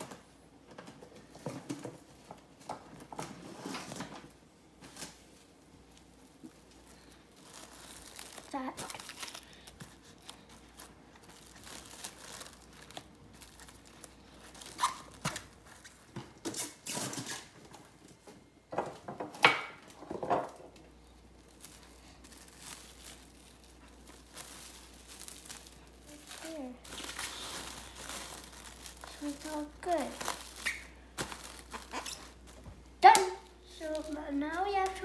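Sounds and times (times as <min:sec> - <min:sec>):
cling wrap tearing and crinkling: 0:04.9 - 0:17.5, 0:21.1 - 0:35.0.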